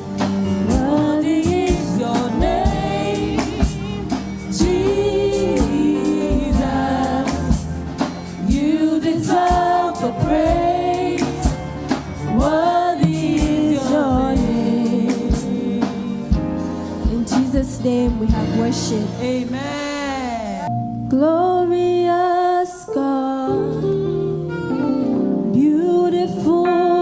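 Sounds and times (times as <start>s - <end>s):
group singing worship song: 0.0s - 17.4s
live band with drums: 0.0s - 19.5s.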